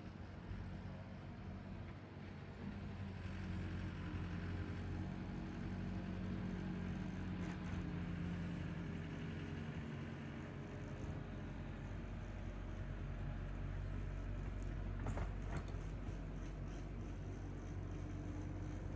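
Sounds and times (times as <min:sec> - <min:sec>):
tractor engine under load: 0:11.6 - 0:18.9.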